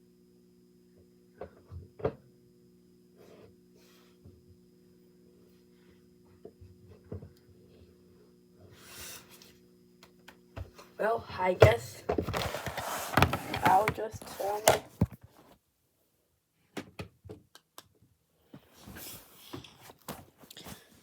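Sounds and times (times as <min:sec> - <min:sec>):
steady electrical hum: 0:00.0 - 0:16.6.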